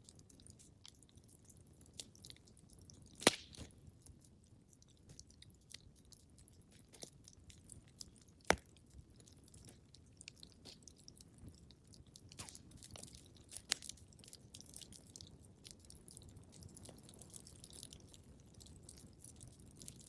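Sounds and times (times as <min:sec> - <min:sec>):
wood fire crackling: 0:00.0 - 0:20.0
sharp fire pops: 0:03.2 - 0:03.7.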